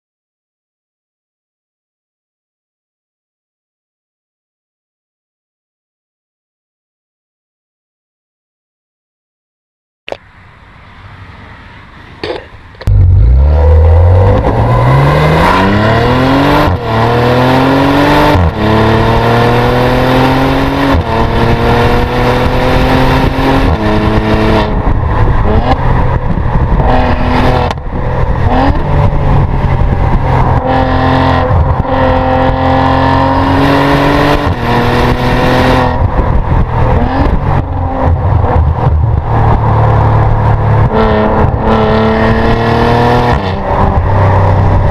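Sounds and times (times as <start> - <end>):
car engine accelerating hard: 12.8 - 44.9.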